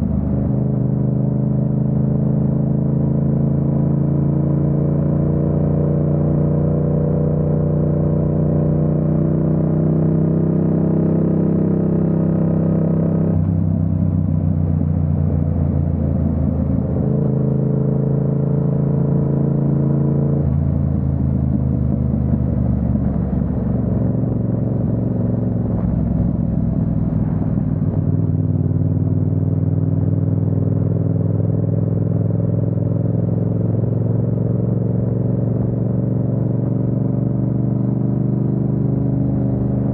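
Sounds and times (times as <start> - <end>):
motorcycle engine running: 9.4 - 39.9.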